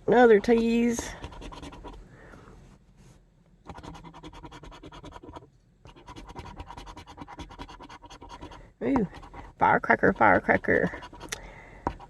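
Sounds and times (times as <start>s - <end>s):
scratching lottery ticket: 0.3s - 2.0s, 3.7s - 11.3s.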